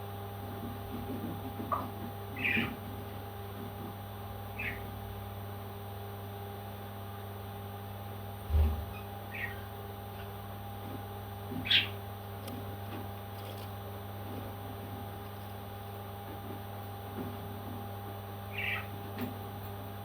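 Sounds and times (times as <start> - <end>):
electrical hum: 0.0 - 20.0
parrot chirping: 4.6 - 4.8, 9.3 - 9.6, 18.5 - 18.9.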